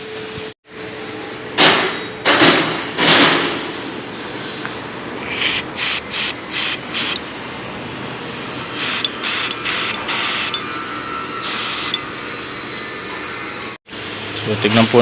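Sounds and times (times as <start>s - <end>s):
aerosol spray hissing: 5.2s - 7.2s, 8.7s - 10.6s, 11.4s - 12.0s.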